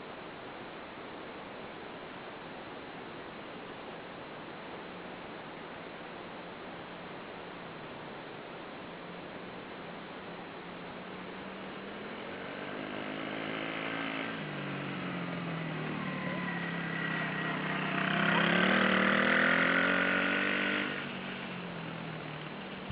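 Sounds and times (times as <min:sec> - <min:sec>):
dirt bike engine running: 0:14.8 - 0:22.9.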